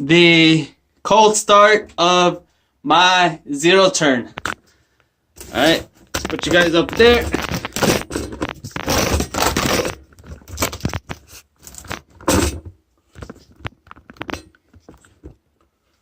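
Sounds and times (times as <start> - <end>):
camera handling rustling and scraping: 5.4 - 15.4
clicks taps and small rattles: 13.1 - 15.7.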